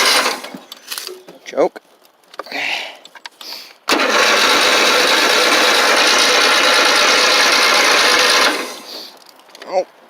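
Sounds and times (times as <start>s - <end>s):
starter cranking engine: 0.0s - 0.5s, 3.9s - 8.9s.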